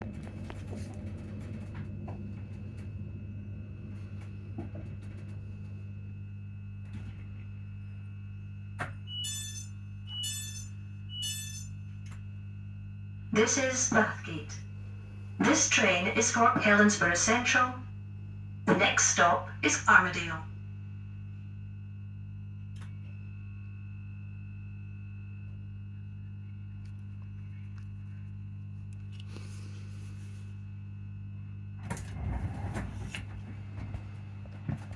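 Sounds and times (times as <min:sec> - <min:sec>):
transformer electrical hum: 0:00.0 - 0:34.9
faint high whine: 0:02.3 - 0:18.0
short electronic beeps: 0:09.1 - 0:11.7
transformer humming: 0:13.4 - 0:17.8.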